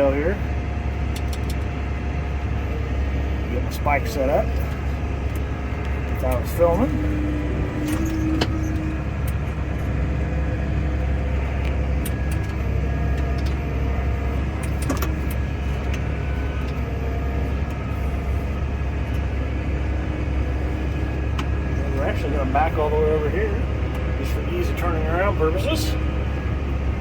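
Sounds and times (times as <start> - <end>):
tractor engine drone: 0.0 - 27.0.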